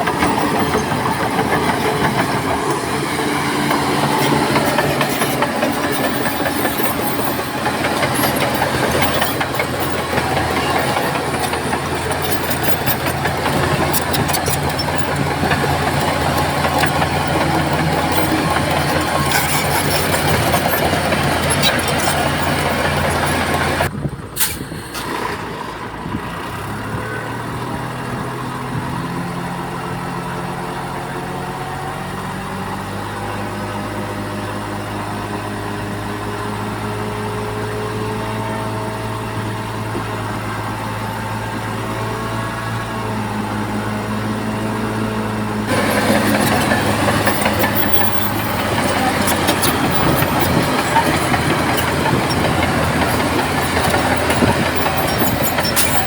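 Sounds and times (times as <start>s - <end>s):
loud noisy clatter: 0.0s - 25.6s, 45.7s - 56.0s
bulldozer diesel engine running: 0.0s - 56.0s.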